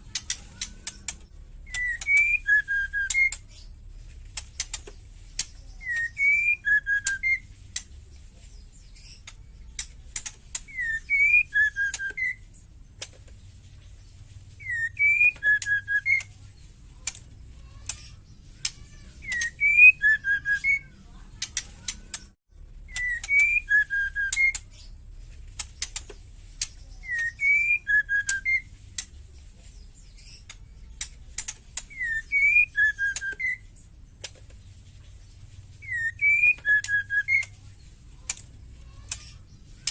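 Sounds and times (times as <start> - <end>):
sharp ticking clicks: 0.0 - 3.5, 4.2 - 8.0, 9.1 - 12.3, 21.3 - 24.7, 25.5 - 27.4, 30.3 - 34.4, 36.5 - 39.9
bird whistled call: 1.7 - 3.4, 5.8 - 7.5, 10.6 - 12.5, 14.6 - 16.3, 19.2 - 21.0, 22.9 - 24.6, 27.0 - 28.7, 31.9 - 33.7, 35.8 - 37.5.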